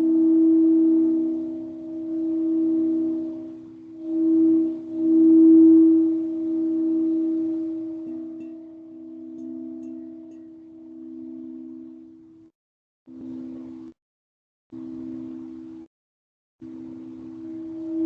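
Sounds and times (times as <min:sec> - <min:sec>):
singing bowl ringing: 0:00.0 - 0:12.5, 0:16.6 - 0:18.0.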